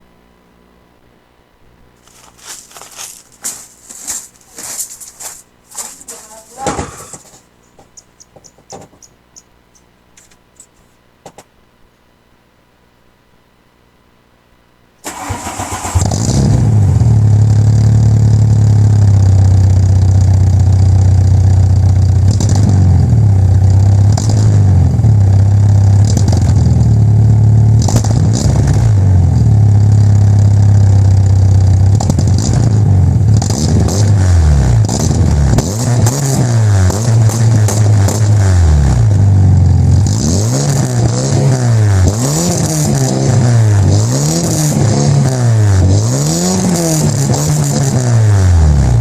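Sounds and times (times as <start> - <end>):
car engine starting: 15.0 - 49.0
car engine idling and revving: 15.1 - 49.0.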